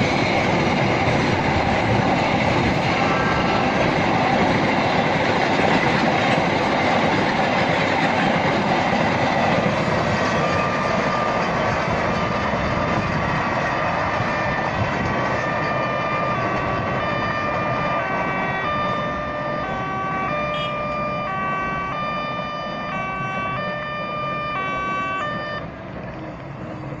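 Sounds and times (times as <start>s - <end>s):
freight train rumbling: 0.0s - 27.0s
level-crossing two-tone alarm: 10.3s - 25.7s.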